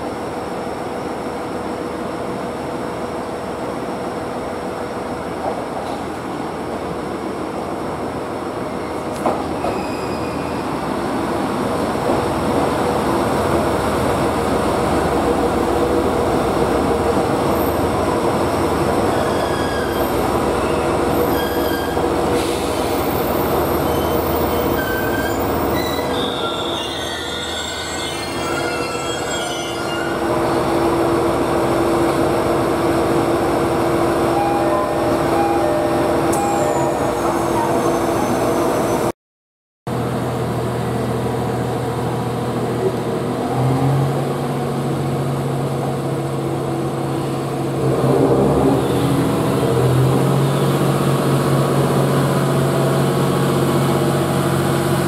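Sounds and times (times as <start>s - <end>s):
train rumbling: 0.0s - 39.1s, 39.9s - 55.0s
wheel and brake squeals: 8.8s - 10.8s, 19.0s - 30.3s, 36.4s - 39.1s.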